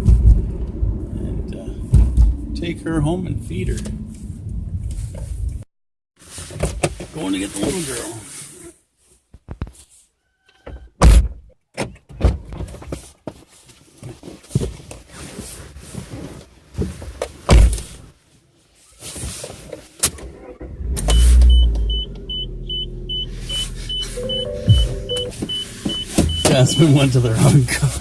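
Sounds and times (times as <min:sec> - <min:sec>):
car engine starting and idling: 0:20.5 - 0:28.0
warning chime beeping: 0:21.5 - 0:27.4
knocks and clicks of handling: 0:24.7 - 0:26.6.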